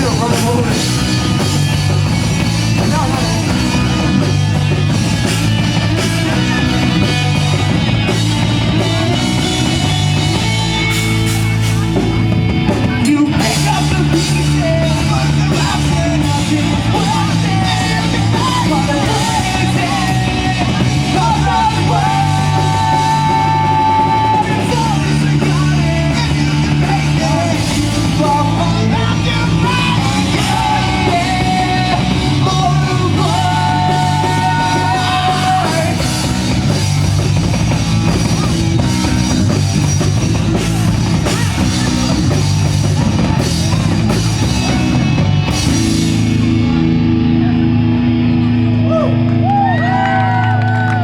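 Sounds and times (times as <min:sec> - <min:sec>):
sung lead melody: 0:00.0 - 0:49.5
drum kit: 0:00.0 - 0:49.6
live rock band playing: 0:00.0 - 0:51.0.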